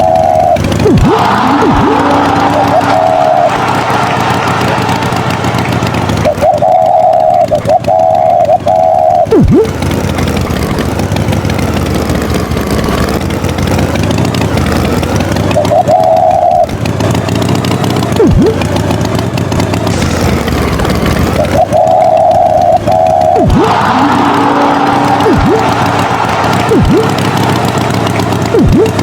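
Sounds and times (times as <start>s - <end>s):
held horn tone blaring: 0.0s - 19.7s, 20.6s - 29.0s
tractor engine running: 0.0s - 29.0s
sharp pitch swoop: 19.9s - 29.0s.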